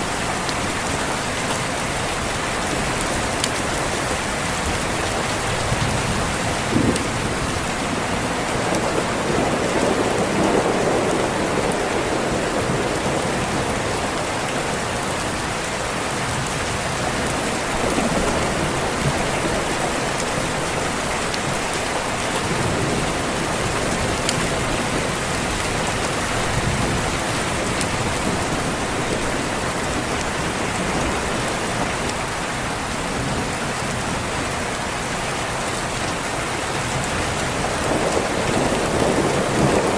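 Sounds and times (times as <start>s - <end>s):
heavy rain on a window: 0.0s - 39.9s
rolling thunder: 4.7s - 14.3s, 37.1s - 39.9s.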